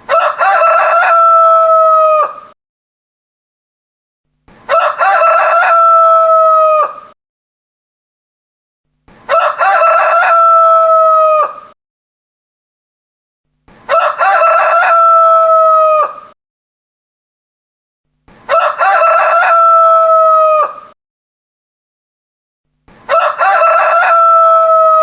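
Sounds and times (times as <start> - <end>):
rooster crowing: 0.1 - 2.6, 4.7 - 7.2, 9.3 - 11.8, 13.9 - 16.4, 18.5 - 21.0, 23.1 - 25.0.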